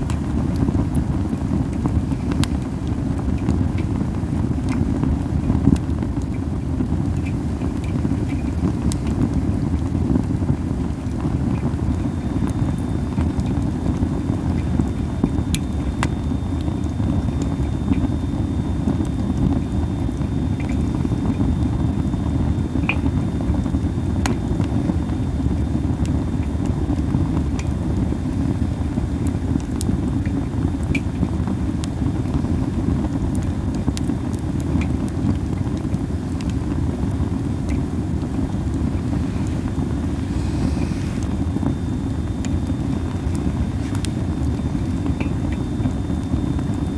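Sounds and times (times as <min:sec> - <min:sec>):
low fire rumble: 0:00.0 - 0:46.9
wood fire crackling and popping: 0:00.0 - 0:46.9.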